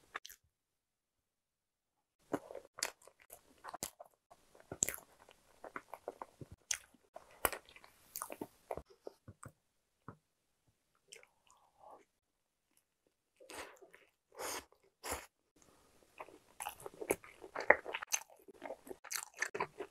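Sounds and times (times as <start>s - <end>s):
chewing bread: 2.2s - 8.8s, 16.1s - 19.9s.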